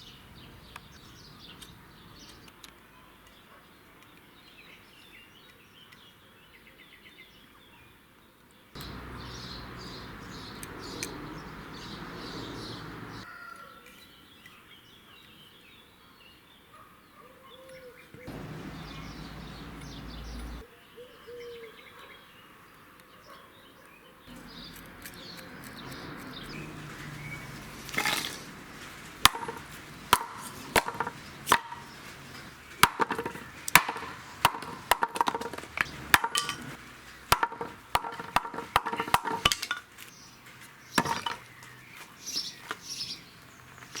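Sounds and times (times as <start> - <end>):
axe chopping wood: 27.9 - 28.4, 29.2 - 39.9, 41.0 - 41.4.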